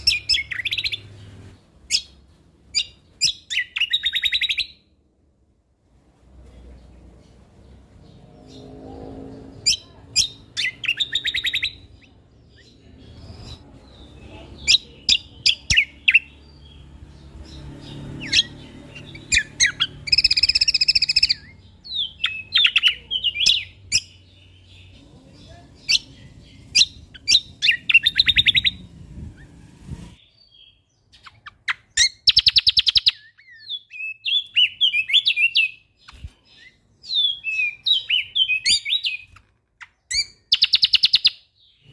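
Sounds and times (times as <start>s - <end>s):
songbird chirping and trilling: 0.0s - 5.4s, 6.1s - 41.9s
faint low rumble: 24.9s - 30.2s.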